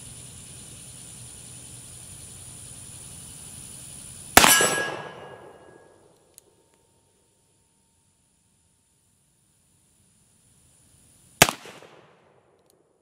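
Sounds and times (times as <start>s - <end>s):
crickets chirping: 0.0s - 13.0s
revolver gunshot with ringing tail: 4.4s - 5.9s, 11.4s - 12.2s.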